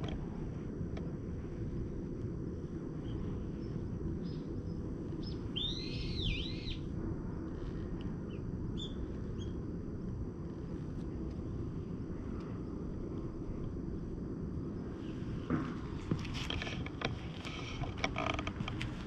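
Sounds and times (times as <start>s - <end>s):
steady low rumble: 0.0s - 19.0s
songbird calling: 3.0s - 6.9s, 8.3s - 9.6s.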